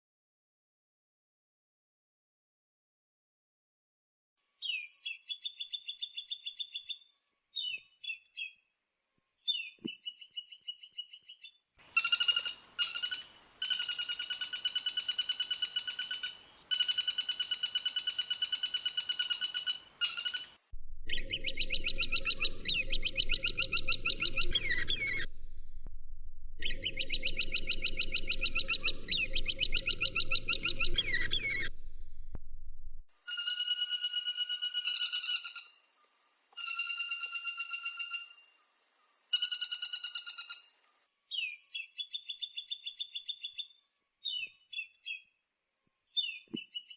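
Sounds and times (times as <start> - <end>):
woodpecker calls: 9.5 - 25.3, 26.6 - 31.7, 33.3 - 38.6, 39.3 - 40.8
low background hum: 20.8 - 33.1.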